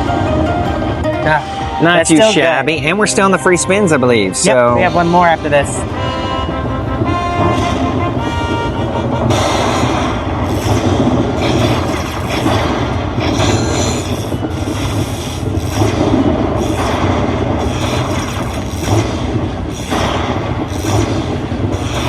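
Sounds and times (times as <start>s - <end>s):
slot machine sound effects: 1.1s - 6.5s.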